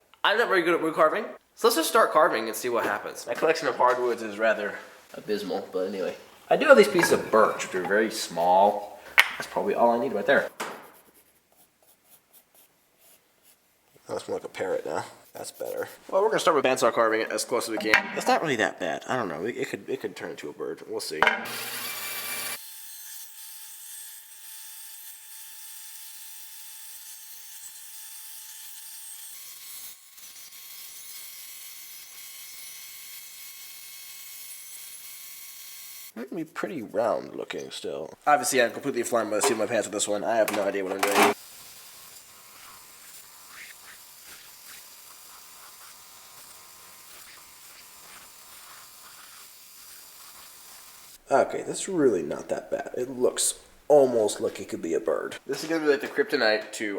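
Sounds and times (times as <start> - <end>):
steady low hiss: 0.1 - 21.3, 51.2 - 56.9
band saw cutting wood: 6.5 - 11.0, 21.2 - 36.2, 38.6 - 51.2
knife scraping wood: 10.5 - 13.6, 42.2 - 51.2.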